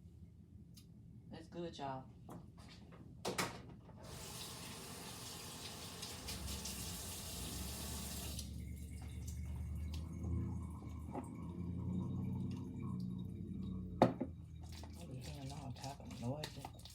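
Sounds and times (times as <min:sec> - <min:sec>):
water running into sink: 0:04.0 - 0:13.2.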